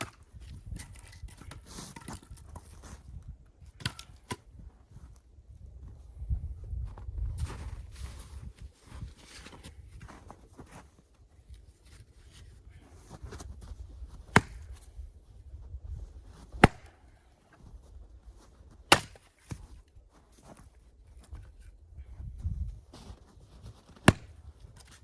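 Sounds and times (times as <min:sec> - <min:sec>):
axe striking wood: 0:14.3 - 0:14.8, 0:16.6 - 0:17.0, 0:18.9 - 0:19.6, 0:24.0 - 0:24.4.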